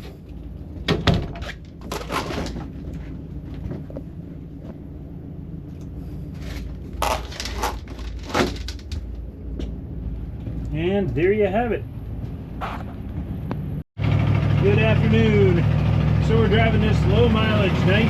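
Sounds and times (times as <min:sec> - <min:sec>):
low steady hum: 0:00.0 - 0:13.8
sharp knocks and rattles: 0:06.4 - 0:09.8.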